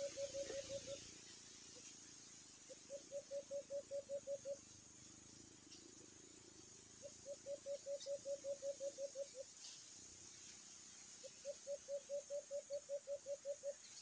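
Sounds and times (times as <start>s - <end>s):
bird hooting rapidly: 0.0s - 1.1s, 2.7s - 4.6s, 7.0s - 9.4s, 11.4s - 13.8s
high insect buzz: 0.0s - 14.0s.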